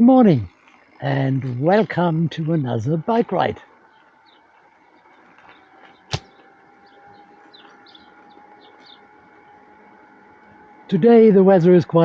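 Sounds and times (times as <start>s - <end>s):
faint birds chirping: 0.0s - 12.0s
sharp click: 5.8s - 6.3s.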